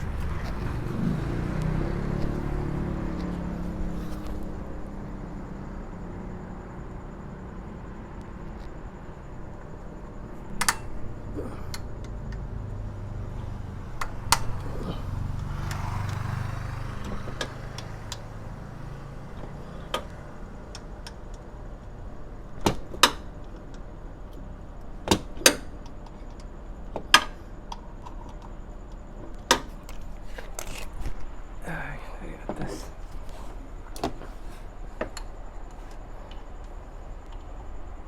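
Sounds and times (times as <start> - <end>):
low hum: 0.0 - 22.4.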